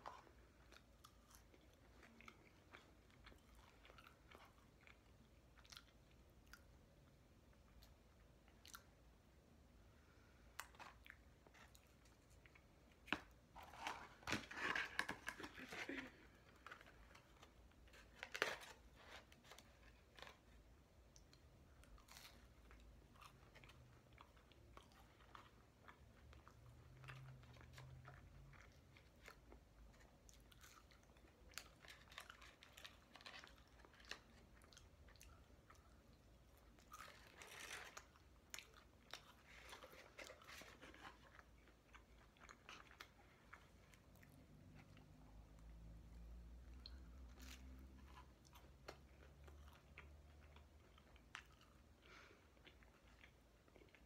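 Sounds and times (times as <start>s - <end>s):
faint chewing and crunching: 0.0s - 54.0s.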